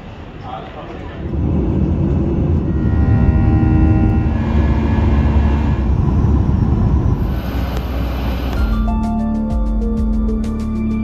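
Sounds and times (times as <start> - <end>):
jet engines rumbling: 0.0 - 8.9.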